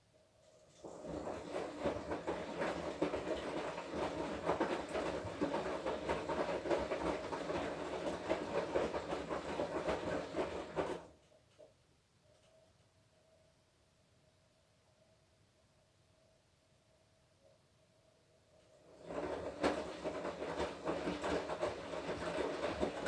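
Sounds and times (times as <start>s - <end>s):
washing machine motor hum: 0.4s - 11.2s, 18.6s - 23.0s
laundry tumbling in water: 0.8s - 11.1s, 18.9s - 23.0s.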